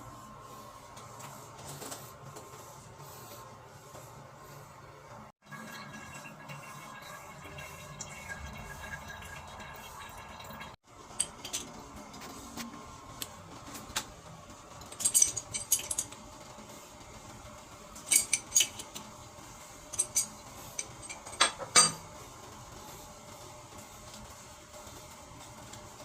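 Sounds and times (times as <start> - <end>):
metal clinks and clicks: 14.9 - 16.2.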